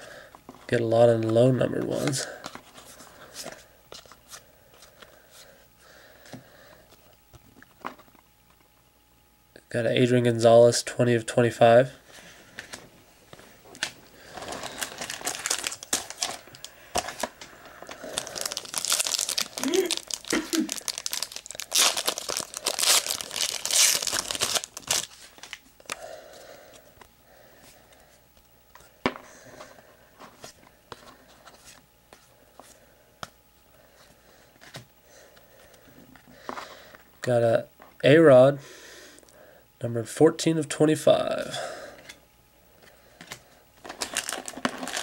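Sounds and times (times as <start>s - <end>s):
card pack wrapper crinkling: 13.7s - 26.0s, 43.8s - 45.0s.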